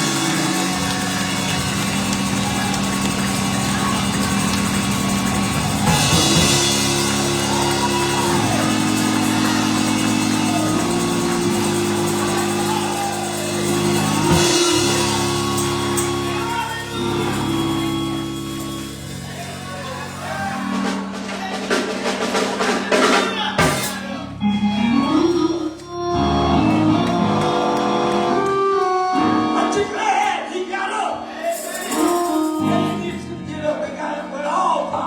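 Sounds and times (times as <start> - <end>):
drums: 0.0 - 24.3
people calling out: 0.0 - 27.6
held chords: 0.0 - 34.2
voices singing: 0.0 - 34.3.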